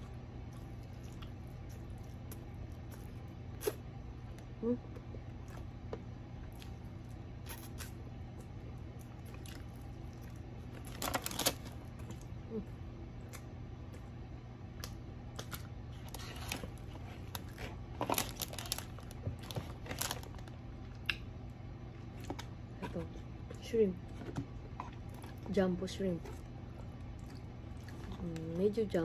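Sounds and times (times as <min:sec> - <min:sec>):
steady low hum: 0:00.0 - 0:29.0
crunching fried chicken: 0:05.4 - 0:12.4, 0:14.8 - 0:21.3.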